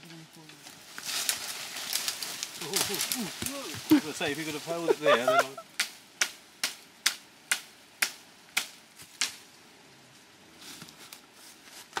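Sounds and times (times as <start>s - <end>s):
faint rustle: 0.0s - 5.6s, 8.8s - 12.0s.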